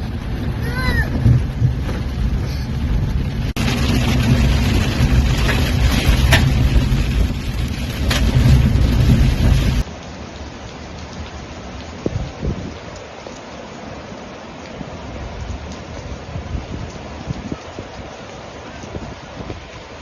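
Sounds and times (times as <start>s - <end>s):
low rumble: 0.0s - 9.9s
heavy rain: 0.0s - 20.0s.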